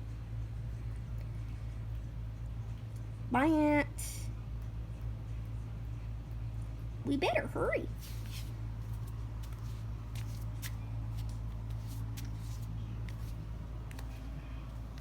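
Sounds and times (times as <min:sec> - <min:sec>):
steady low hum: 0:00.0 - 0:15.0
footsteps: 0:07.9 - 0:14.3
light clicks and scuffs: 0:07.9 - 0:15.0.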